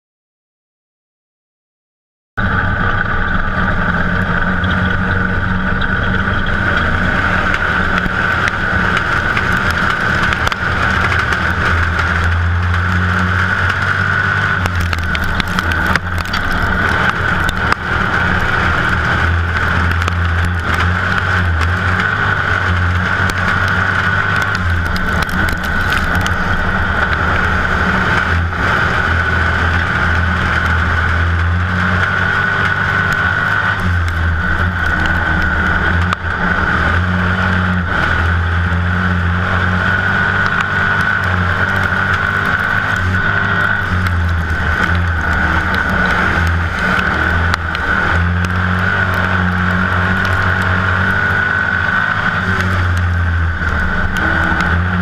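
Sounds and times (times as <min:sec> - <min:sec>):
race car engine running: 0:02.4 - 0:55.0.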